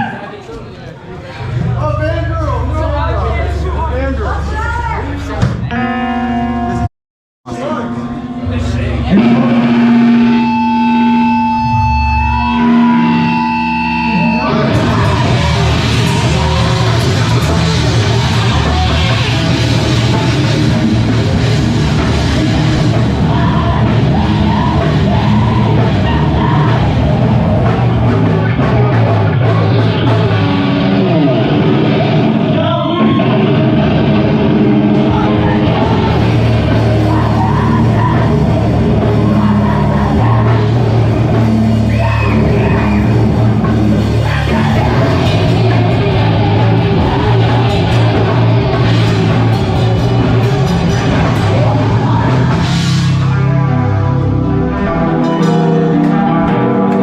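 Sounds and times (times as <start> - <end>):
heavy rock band playing: 1.4 - 6.9, 7.5 - 57.0
ringing guitar notes: 5.7 - 6.9, 7.5 - 28.1, 53.4 - 57.0.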